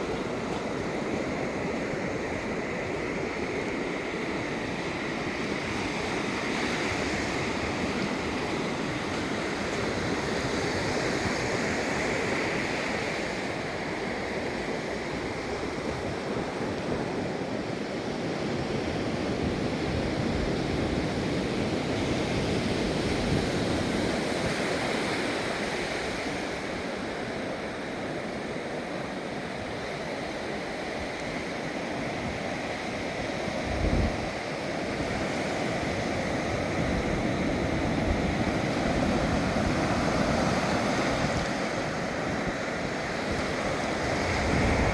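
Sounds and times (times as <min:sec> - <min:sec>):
ocean surf breaking: 0:34.2 - 0:44.9.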